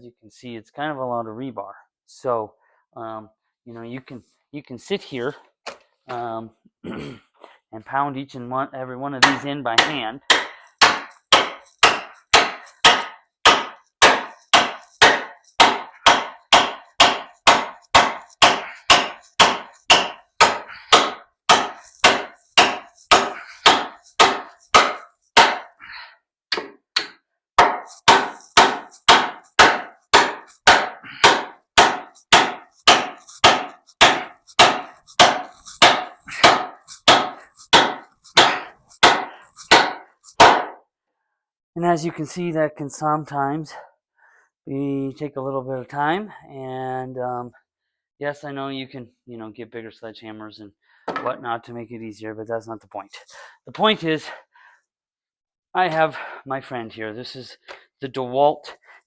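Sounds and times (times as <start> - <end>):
hammer striking steel stake: 9.2 - 25.8, 26.5 - 40.8.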